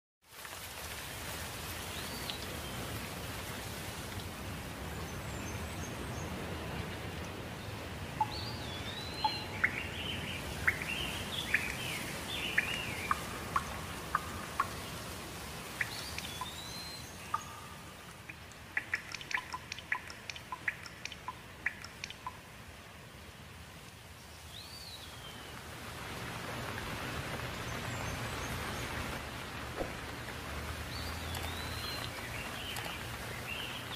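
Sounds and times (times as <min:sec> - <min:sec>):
steady background noise: 0:02.5 - 0:33.9
birds whistling and chirping: 0:08.2 - 0:14.7, 0:15.8 - 0:17.8.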